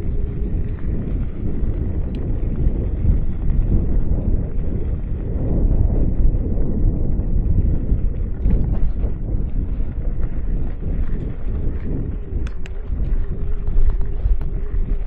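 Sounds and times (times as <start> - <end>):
faint ticks and rattles: 0.0 - 15.0
wind buffeting microphone: 0.0 - 15.0.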